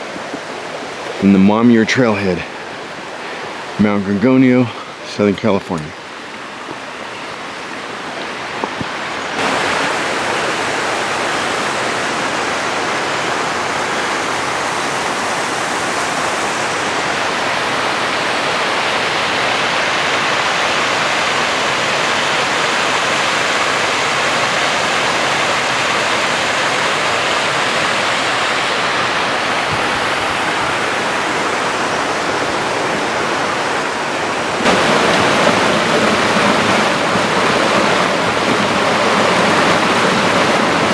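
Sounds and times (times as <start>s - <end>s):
rushing mountain creek: 0.0s - 40.9s.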